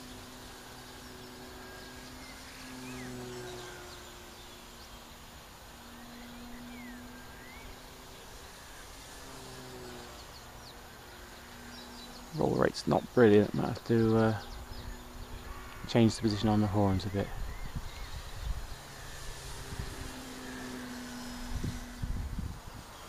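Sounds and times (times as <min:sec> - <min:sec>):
distant rc plane motor hum: 0:00.0 - 0:23.0.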